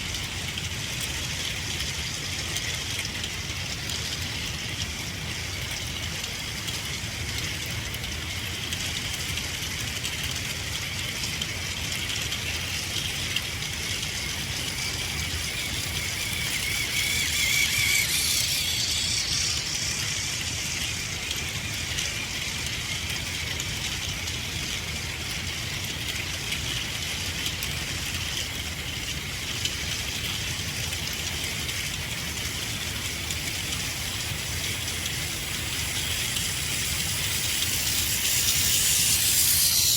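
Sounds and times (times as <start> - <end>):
toy train motor whine: 9.9 - 39.9
wheels rattling over rails: 11.9 - 24.7.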